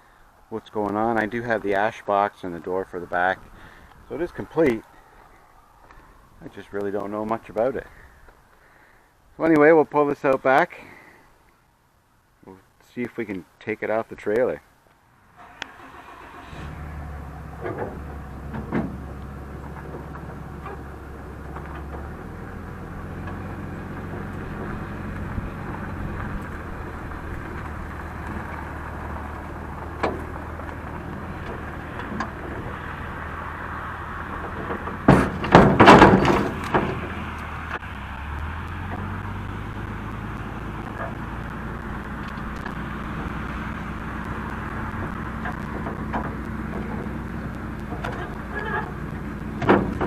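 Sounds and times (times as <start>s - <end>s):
vehicle engine running: 15.5s - 50.0s
loud rattling and banging: 17.6s - 33.4s, 34.0s - 37.4s, 38.8s - 50.0s.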